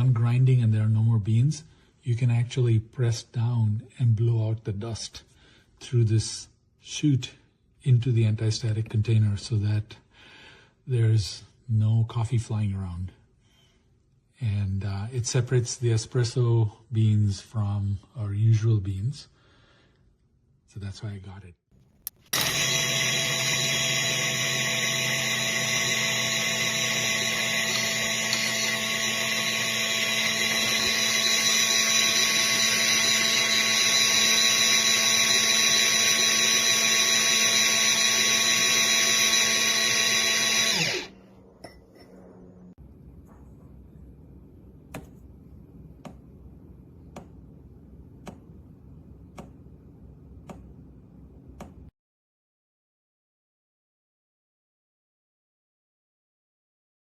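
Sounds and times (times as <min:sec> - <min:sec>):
electric coffee grinder running: 0:22.2 - 0:41.1.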